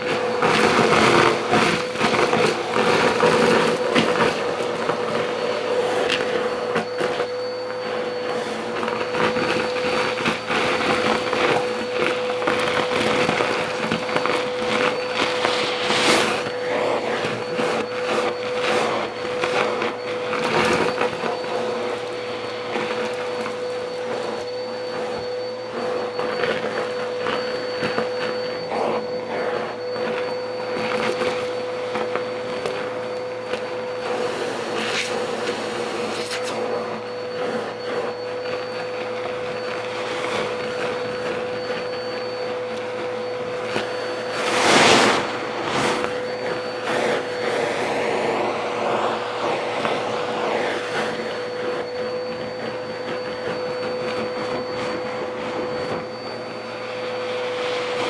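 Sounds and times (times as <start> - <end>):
machine motor whining: 11.2 - 18.4, 38.1 - 53.9
rushing noise: 15.0 - 16.9, 44.1 - 46.7.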